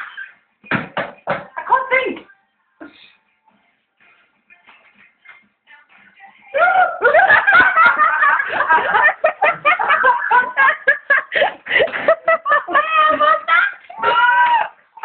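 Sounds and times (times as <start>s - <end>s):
person giggling: 7.0s - 14.0s.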